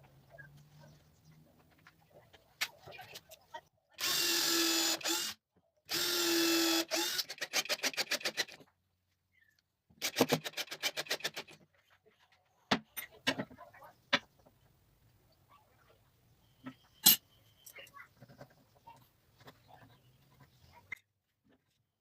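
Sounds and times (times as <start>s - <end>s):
drill motor whining: 4.0s - 7.3s.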